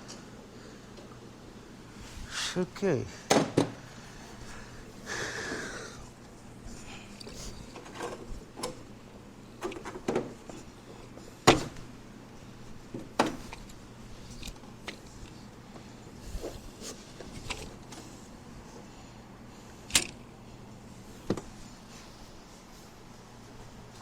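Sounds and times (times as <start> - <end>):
tools and parts clanking: 7.2 - 8.8.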